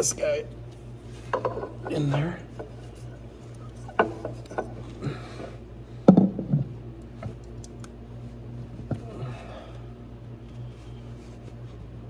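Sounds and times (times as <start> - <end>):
metal parts knocking and clinking: 1.3 - 5.0.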